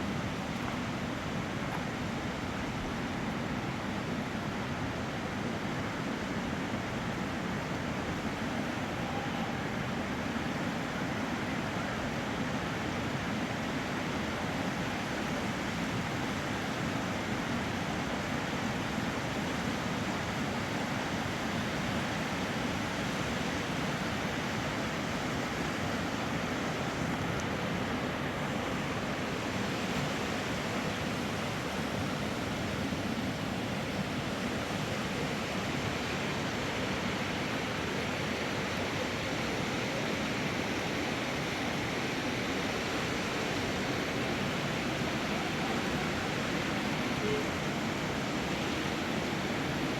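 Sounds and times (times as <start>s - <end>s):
fast-flowing river rushing: 0.0s - 49.9s.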